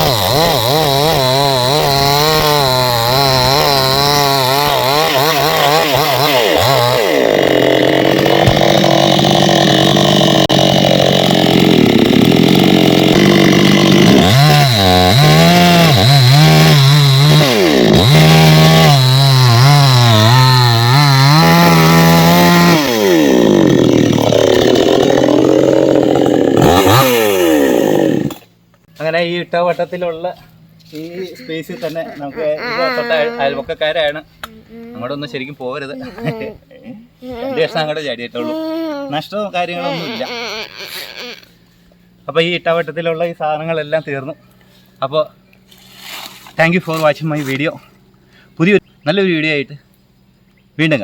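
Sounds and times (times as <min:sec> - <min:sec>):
chainsaw sawing wood: 0:00.0 - 0:28.5, 0:30.8 - 0:33.6, 0:36.0 - 0:36.5, 0:37.2 - 0:42.0, 0:45.6 - 0:47.6.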